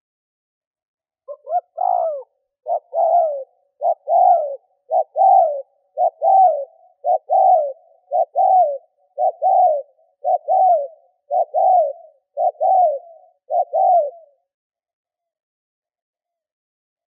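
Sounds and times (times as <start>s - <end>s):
dove cooing: 1.3s - 14.5s.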